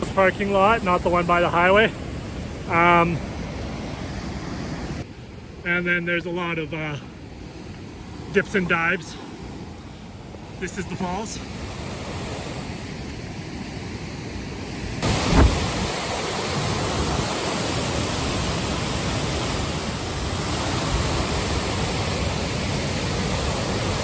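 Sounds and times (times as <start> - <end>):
waterfall roaring: 15.0 - 24.0
short thump: 15.1 - 15.8.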